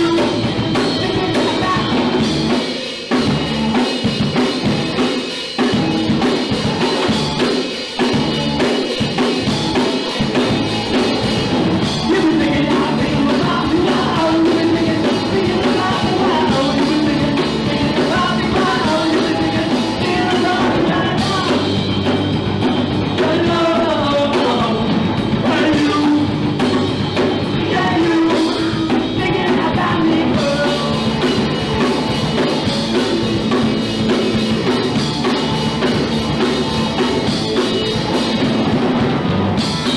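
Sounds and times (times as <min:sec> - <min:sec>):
person singing: 0:00.0 - 0:02.6, 0:11.8 - 0:22.1, 0:23.0 - 0:26.9, 0:27.6 - 0:32.6
punk rock band playing live: 0:00.0 - 0:39.9.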